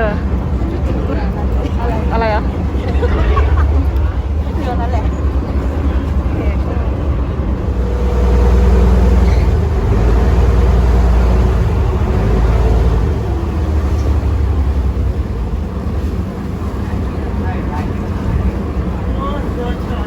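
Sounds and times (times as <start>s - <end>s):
ferry engine droning: 0.0s - 20.0s.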